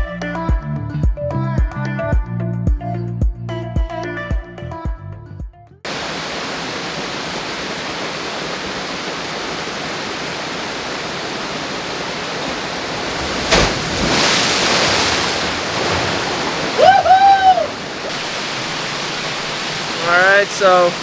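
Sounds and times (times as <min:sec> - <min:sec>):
waterfall pouring into a pool: 0:05.9 - 0:21.0.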